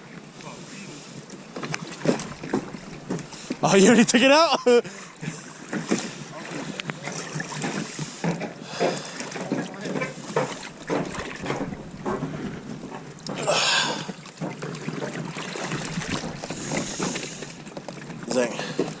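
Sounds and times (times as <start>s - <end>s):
water sloshing around boats: 0.0s - 19.0s
water splashing rush: 0.0s - 19.0s
wind on microphone: 10.6s - 14.2s, 15.6s - 18.2s.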